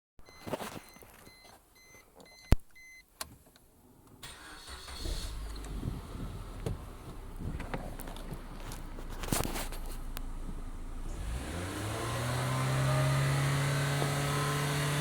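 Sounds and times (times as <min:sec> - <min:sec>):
short electronic beeps: 0:00.2 - 0:03.0
car engine starting and running: 0:03.9 - 0:15.0.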